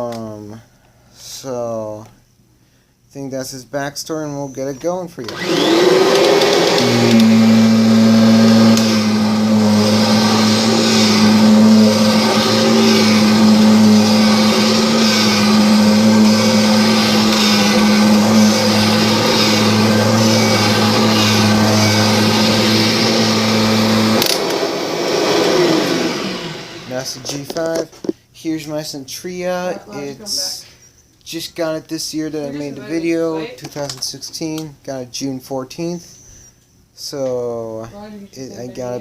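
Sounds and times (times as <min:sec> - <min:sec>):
vacuum cleaner running: 0:05.3 - 0:27.8.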